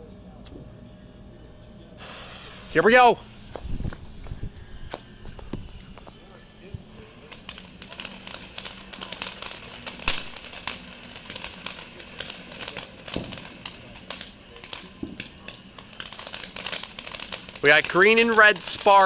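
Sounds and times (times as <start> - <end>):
firework crackling: 1.9 - 19.0.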